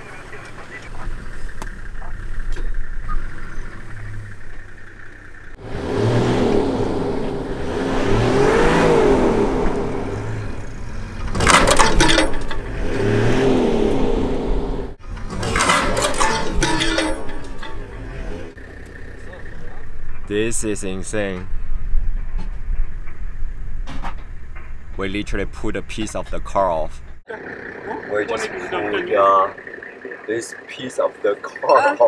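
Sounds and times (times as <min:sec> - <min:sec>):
vehicle engines revving hard: 0:00.0 - 0:20.3
clattering knocks: 0:11.1 - 0:12.8, 0:15.0 - 0:18.3, 0:21.4 - 0:25.1.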